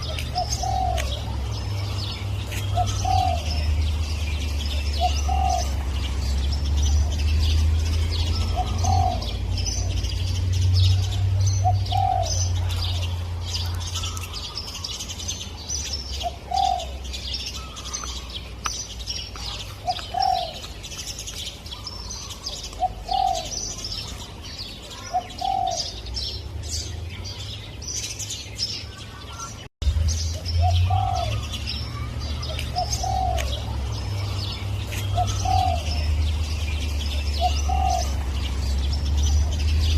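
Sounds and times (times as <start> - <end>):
dove cooing: 0.0 - 6.0, 8.2 - 10.1, 10.8 - 14.9, 16.2 - 17.0, 19.4 - 20.7, 21.8 - 24.2, 24.9 - 26.1, 30.6 - 38.7
small birds chirping: 0.0 - 39.9.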